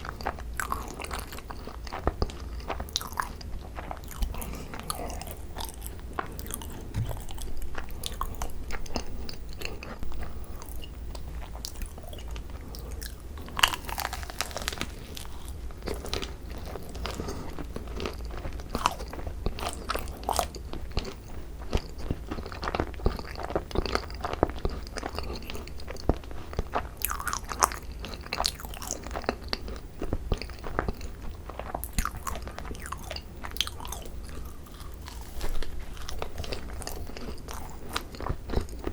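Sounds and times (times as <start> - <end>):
chewing and mouth sounds: 0.0 - 38.9
crunching bites: 11.7 - 17.2.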